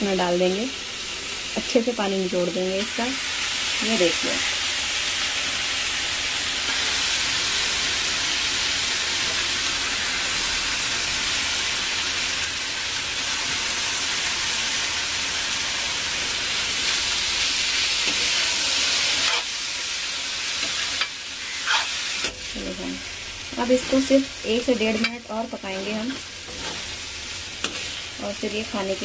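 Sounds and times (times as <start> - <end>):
food sizzling in hot oil: 0.0 - 29.0
spatula stirring: 24.8 - 28.5.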